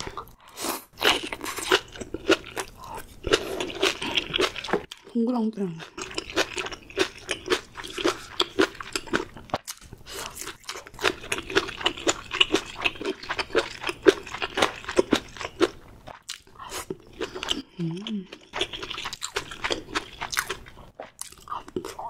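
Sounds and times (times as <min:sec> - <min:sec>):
close chewing clicks: 0:10.5 - 0:17.6, 0:18.3 - 0:22.0.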